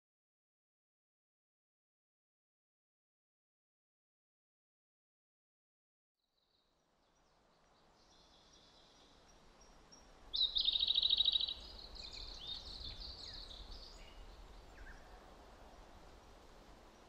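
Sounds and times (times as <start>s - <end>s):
faint outdoor background hiss: 6.2s - 17.0s
birds singing: 7.2s - 15.2s.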